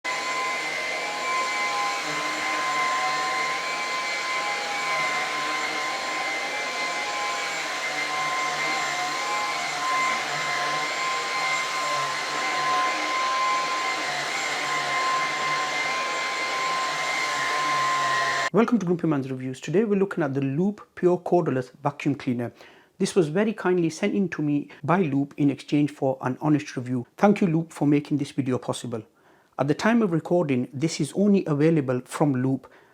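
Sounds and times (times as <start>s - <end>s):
stick vacuum cleaner running: 0.0s - 18.5s.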